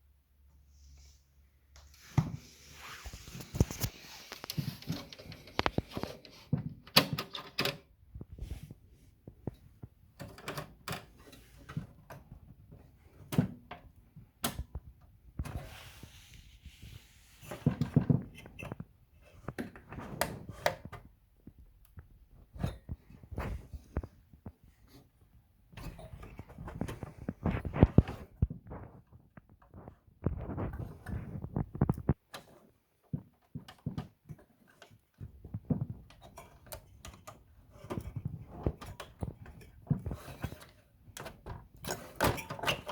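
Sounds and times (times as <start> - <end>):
hands handling small parts: 2.8 - 7.8.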